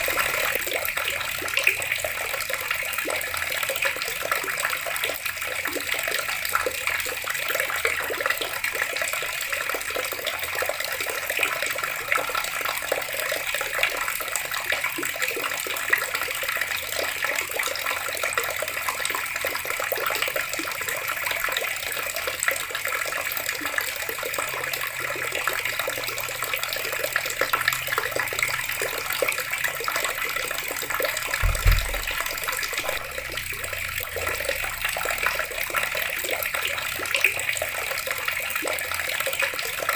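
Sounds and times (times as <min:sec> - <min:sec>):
water running from a tap: 0:00.0 - 0:39.9
low thud: 0:31.4 - 0:34.2.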